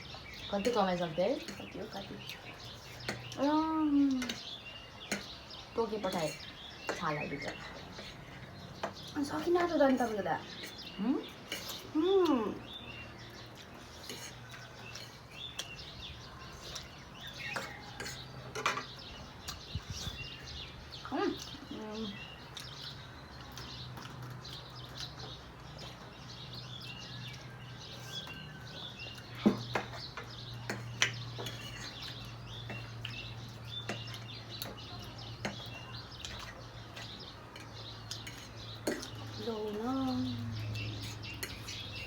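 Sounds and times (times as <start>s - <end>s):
small birds chirping: 0.0s - 42.0s
cutlery clinking on a plate: 16.6s - 19.0s.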